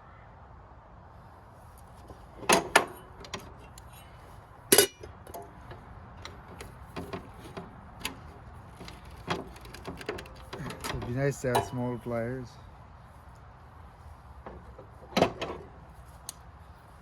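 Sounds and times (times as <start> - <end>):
metal tools clinking: 4.7 - 5.4, 8.8 - 12.3.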